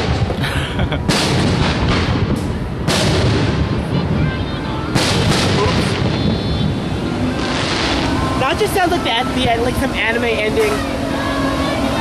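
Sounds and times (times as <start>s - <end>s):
fireworks booming: 0.0s - 11.1s
heavy low rumble: 4.9s - 12.0s.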